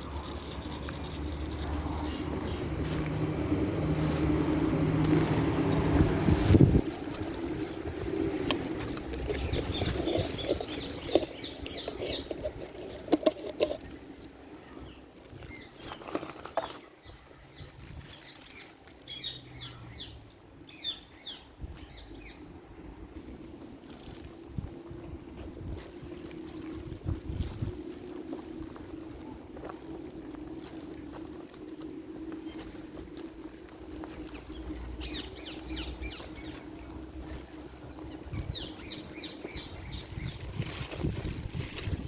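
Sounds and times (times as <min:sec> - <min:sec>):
small bird chirping: 0:09.2 - 0:12.8, 0:34.4 - 0:40.7
bird chirping: 0:09.2 - 0:13.0
faint low rumble: 0:22.5 - 0:42.0.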